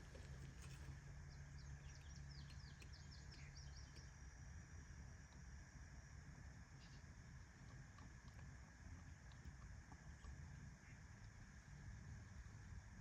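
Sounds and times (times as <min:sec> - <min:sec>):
low background rumble: 0:00.0 - 0:13.0
faint bird chirps: 0:00.1 - 0:04.2, 0:06.7 - 0:07.2.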